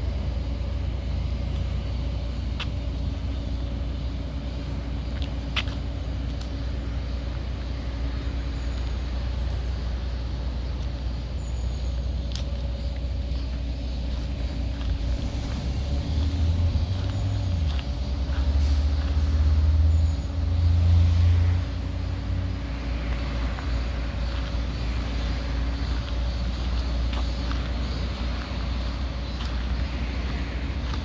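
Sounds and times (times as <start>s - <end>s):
traffic rumble: 0.0s - 31.0s
heavy vehicle passing: 14.4s - 26.7s.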